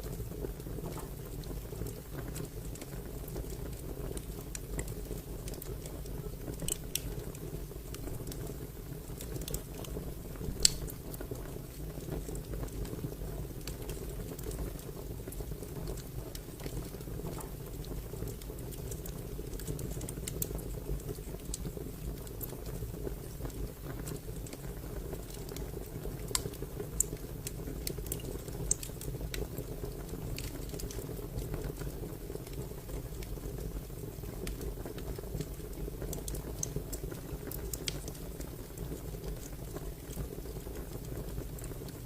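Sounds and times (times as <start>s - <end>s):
wood fire crackling: 0.0s - 42.0s
loud fire pops: 9.4s - 11.0s.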